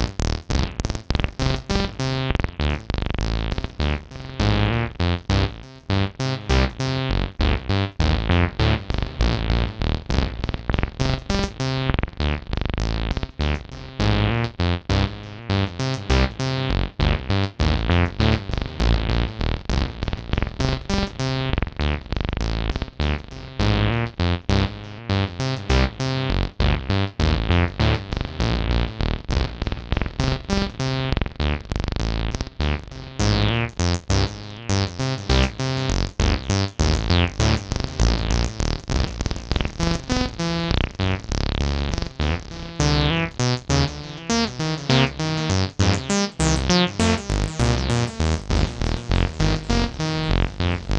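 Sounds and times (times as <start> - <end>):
squelching acid bass synth line: 0.0 - 50.9.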